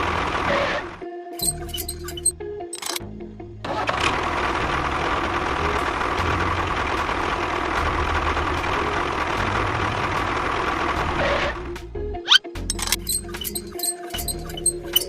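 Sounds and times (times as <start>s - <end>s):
small engine running: 3.7s - 11.6s.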